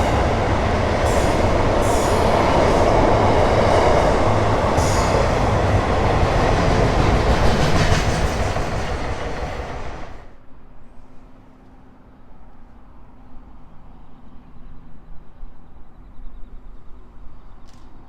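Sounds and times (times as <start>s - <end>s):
freight train wheels clattering: 0.0s - 10.2s.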